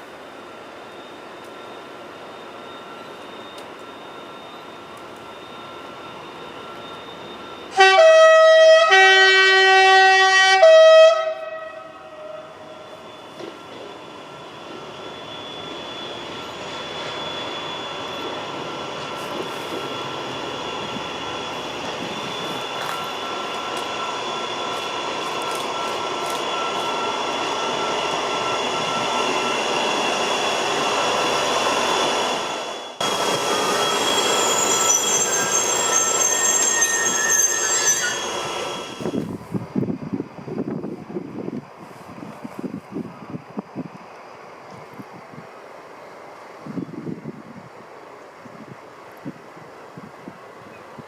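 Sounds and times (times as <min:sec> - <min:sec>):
train wheels squealing on rails: 0:00.0 - 0:51.0.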